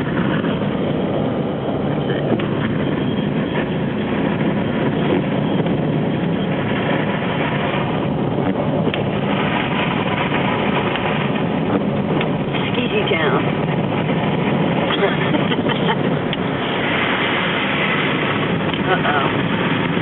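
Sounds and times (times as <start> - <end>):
car engine heard from inside: 10.6 - 13.9.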